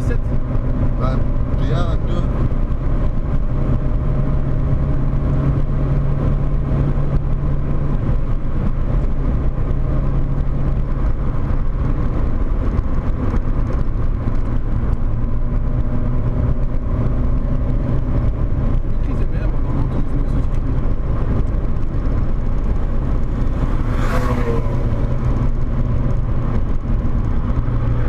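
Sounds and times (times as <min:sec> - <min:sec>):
car engine pulling hard: 0:00.0 - 0:28.0
dense rush of noise: 0:17.9 - 0:28.0.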